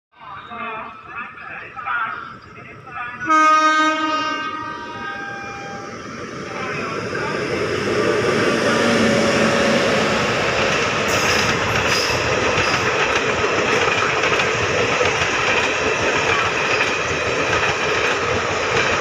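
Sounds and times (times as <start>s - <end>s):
train wheels rolling on rails: 4.8s - 19.0s
clickety-clack of wheels: 10.5s - 19.0s.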